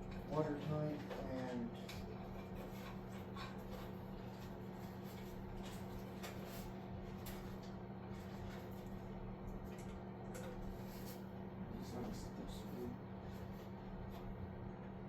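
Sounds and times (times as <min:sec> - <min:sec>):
hands clicking and rustling wiring: 0:00.0 - 0:11.2
steady low hum: 0:00.0 - 0:15.0.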